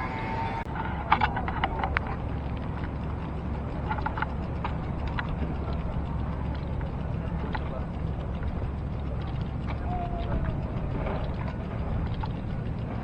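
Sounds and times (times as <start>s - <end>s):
wind and road noise rumble: 0.0s - 13.0s.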